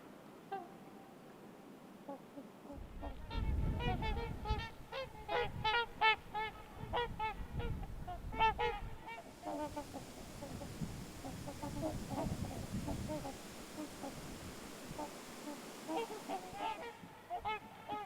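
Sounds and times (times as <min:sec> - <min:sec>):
swans honking: 0:08.4 - 0:18.0.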